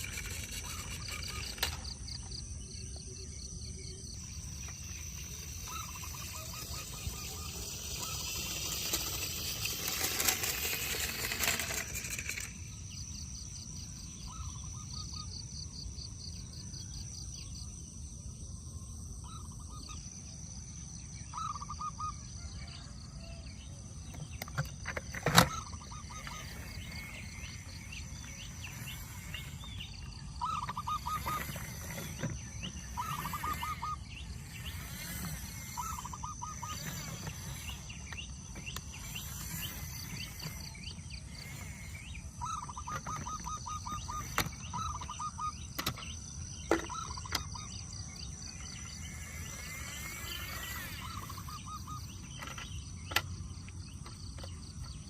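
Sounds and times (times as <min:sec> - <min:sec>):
bird trilled call: 0:00.0 - 0:02.3, 0:04.1 - 0:12.5, 0:24.2 - 0:54.9
insect drone: 0:00.0 - 0:55.0.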